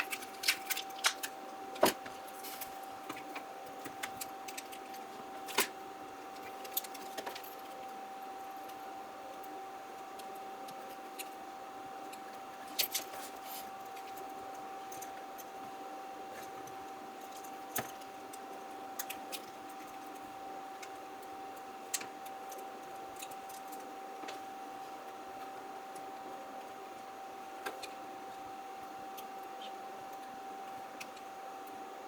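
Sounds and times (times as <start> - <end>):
small tools clicking and tapping: 0.0 - 5.7, 16.4 - 21.3
faint steady whine: 0.0 - 32.0.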